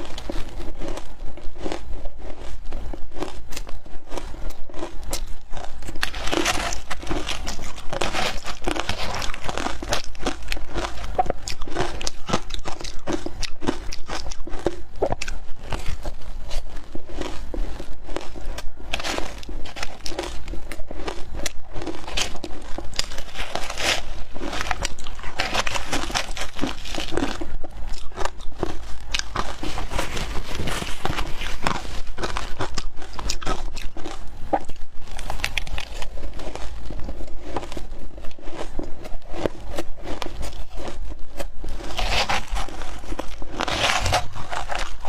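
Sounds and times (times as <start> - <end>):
shaved ice being crunched: 3.2 - 41.0, 41.8 - 45.0.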